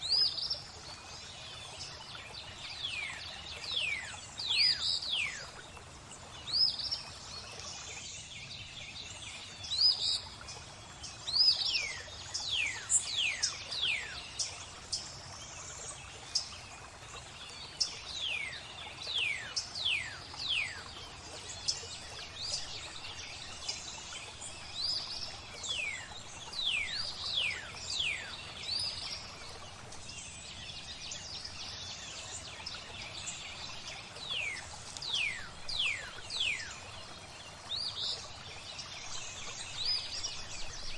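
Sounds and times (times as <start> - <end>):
flowing water hiss: 0.0 - 40.9
birds singing whistled notes: 21.5 - 40.9.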